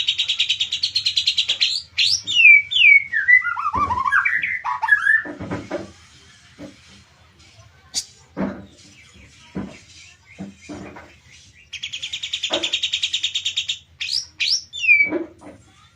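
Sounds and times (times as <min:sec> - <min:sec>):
bird rapid trill: 0:00.0 - 0:05.3, 0:10.4 - 0:15.1.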